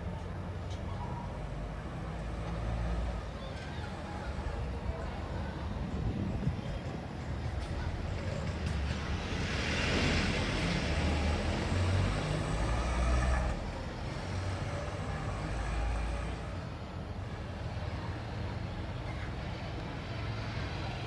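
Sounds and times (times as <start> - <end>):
traffic background noise: 0.0 - 21.0
vehicle passing: 7.9 - 16.7.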